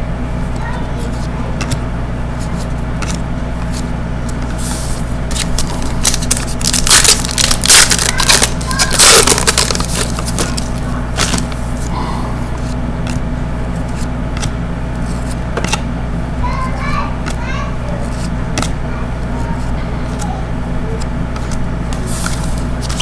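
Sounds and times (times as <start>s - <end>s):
steady low hum: 0.0s - 23.0s
foil wrapper crinkling and tearing: 4.5s - 11.9s, 21.9s - 23.0s.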